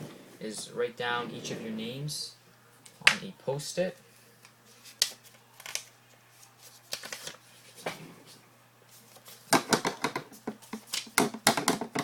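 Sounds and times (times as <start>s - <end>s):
paper rustling: 4.7s - 8.0s.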